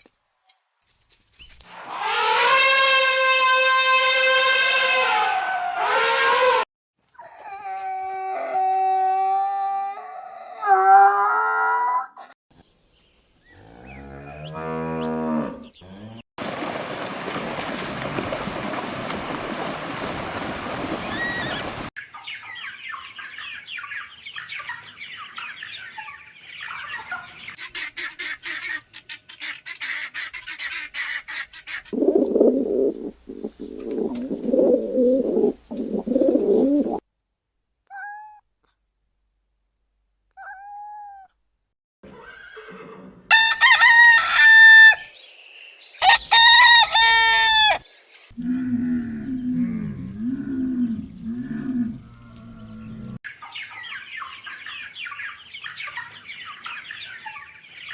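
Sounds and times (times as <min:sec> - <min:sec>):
cow mooing: 0:13.6 - 0:16.2
chickens clucking: 0:22.1 - 0:37.0, 0:53.4 - 0:57.9
rooster crowing: 0:43.3 - 0:45.1, 0:46.0 - 0:47.8.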